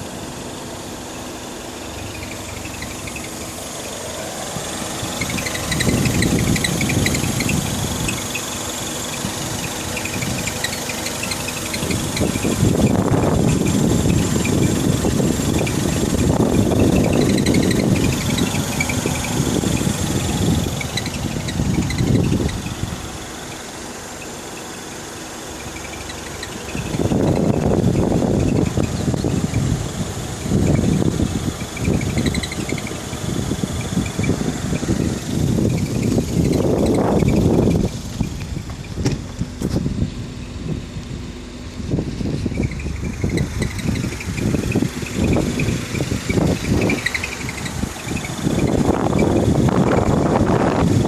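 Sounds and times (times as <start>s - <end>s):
car engine running: 0.0s - 51.0s
short high-pitched squeaks: 1.9s - 22.8s, 25.5s - 29.7s, 31.6s - 39.3s, 42.2s - 50.1s.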